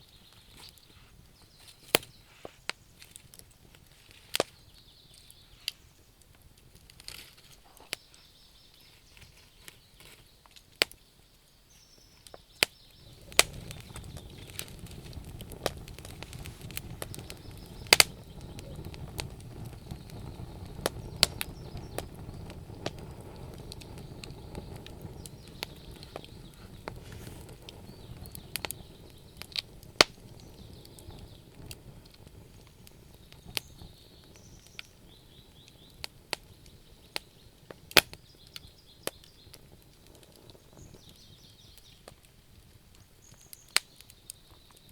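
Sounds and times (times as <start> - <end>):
wood fire crackling and popping: 0.0 - 44.9.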